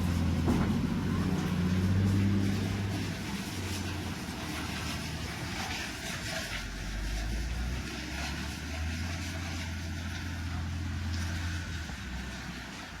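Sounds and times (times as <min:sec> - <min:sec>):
low machine rumble: 0:00.0 - 0:13.0.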